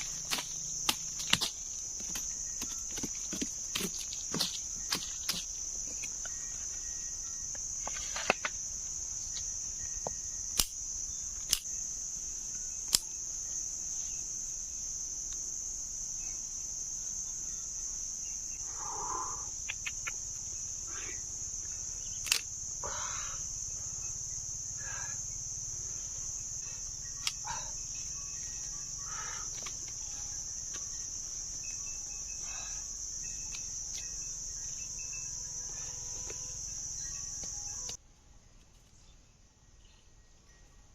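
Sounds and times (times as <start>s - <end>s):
insects droning: 0.0s - 38.0s, 38.9s - 40.9s
sharp clicks: 22.2s - 22.5s.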